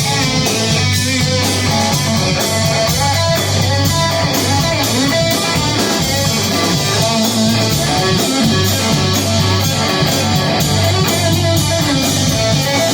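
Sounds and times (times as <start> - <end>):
bass line: 0.0 - 12.9
steady drum beat: 0.0 - 12.9
strummed electric guitar: 0.0 - 12.9.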